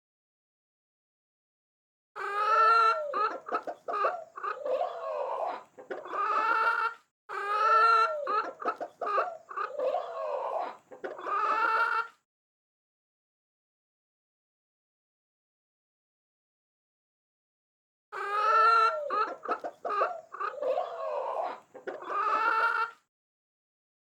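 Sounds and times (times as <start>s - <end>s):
chicken clucking and cackling: 2.2s - 12.2s, 18.2s - 23.1s.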